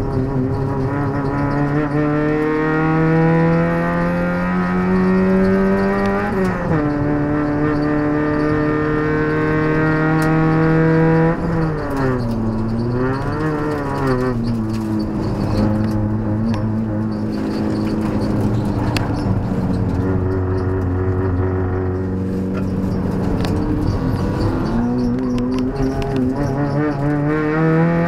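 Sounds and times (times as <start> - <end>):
race car engine revving: 0.0 - 28.0.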